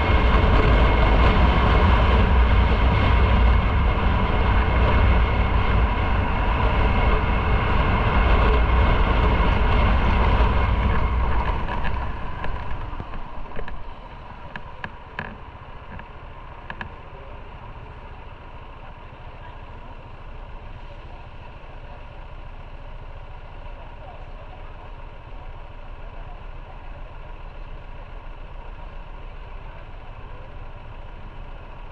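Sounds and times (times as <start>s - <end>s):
wind rushing noise: 0.0s - 14.6s
motorcycle engine rumbling: 0.0s - 31.9s.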